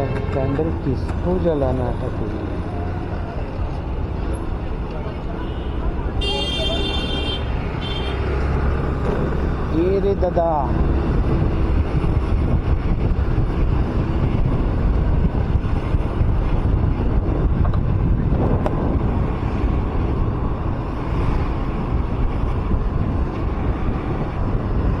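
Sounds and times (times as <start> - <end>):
road and traffic noise: 0.0 - 25.0
wind on microphone: 10.7 - 25.0.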